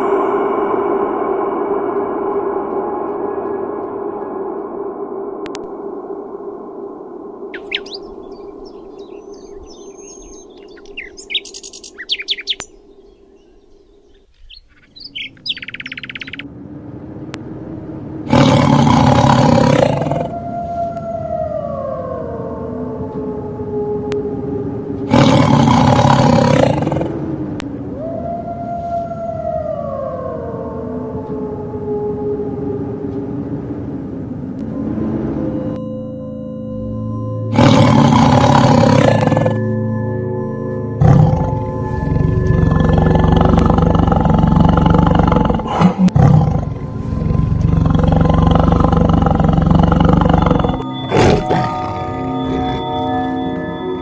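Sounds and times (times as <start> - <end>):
tiger roaring: 18.2 - 20.4, 25.1 - 27.2, 37.5 - 39.7, 41.0 - 53.4
wailing siren-like tone: 19.5 - 25.1, 27.1 - 37.6, 38.8 - 44.2, 49.9 - 54.0.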